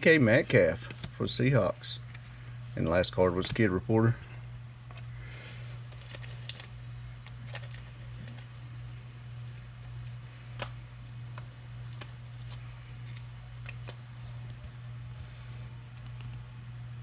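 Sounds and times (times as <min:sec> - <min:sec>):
low electrical hum: 0:00.0 - 0:17.0
trading cards shuffling: 0:05.8 - 0:14.6.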